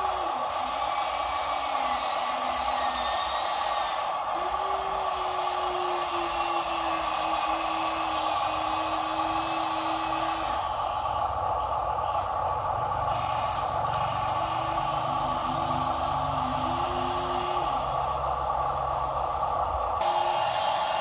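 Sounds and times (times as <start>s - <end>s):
toy truck motors whining: 0.0s - 21.0s.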